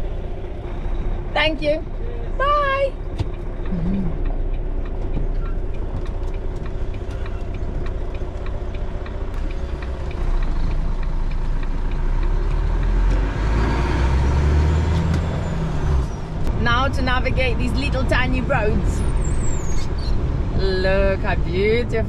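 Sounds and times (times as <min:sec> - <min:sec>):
diesel engine rumble: 0:00.0 - 0:22.0
faint regular clicks: 0:03.1 - 0:13.2.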